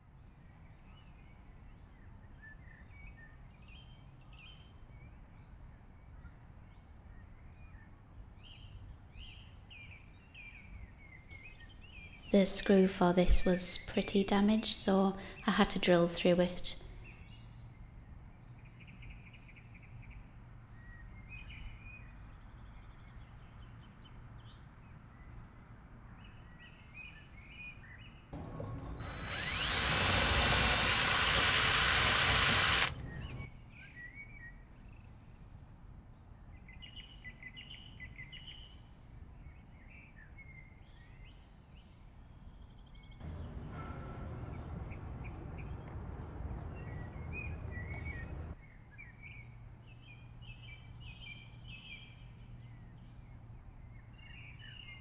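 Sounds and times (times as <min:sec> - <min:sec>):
power drill running: 0:28.4 - 0:33.5
birds chirping: 0:43.2 - 0:48.6.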